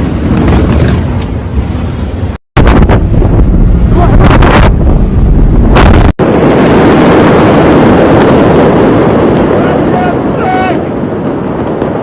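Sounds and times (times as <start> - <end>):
explosion rumble: 2.6 - 12.0.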